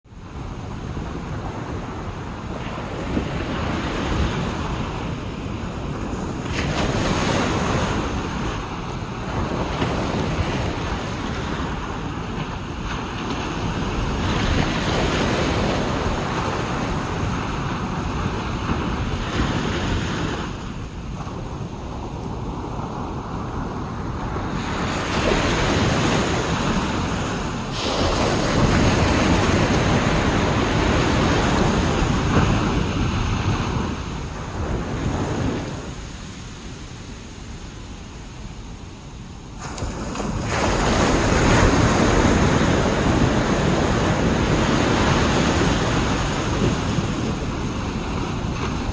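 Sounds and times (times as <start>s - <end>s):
ocean surf on beach: 0.1s - 48.9s
wind buffeting microphone: 0.1s - 48.9s.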